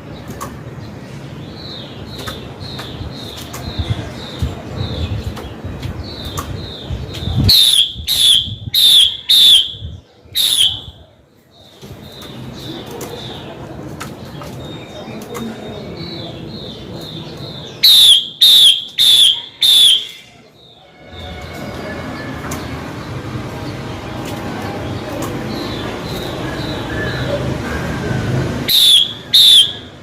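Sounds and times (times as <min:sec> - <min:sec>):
soft repeated bird notes: 0:00.0 - 0:30.0
bird calling sharp notes: 0:07.4 - 0:11.1, 0:17.6 - 0:22.6, 0:24.9 - 0:30.0.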